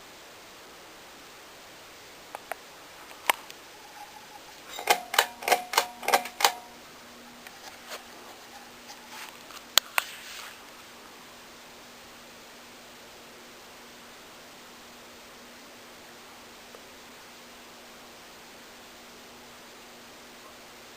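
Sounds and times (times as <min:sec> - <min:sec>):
faint fan motor hum: 0:00.0 - 0:20.9
pull-chain switch clicking: 0:04.7 - 0:06.7.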